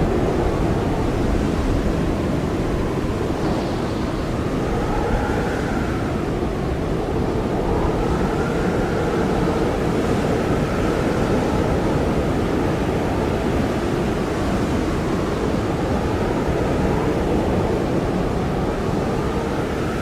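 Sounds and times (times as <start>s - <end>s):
blizzard wind rushing: 0.0s - 20.0s
wind howl: 0.0s - 20.0s.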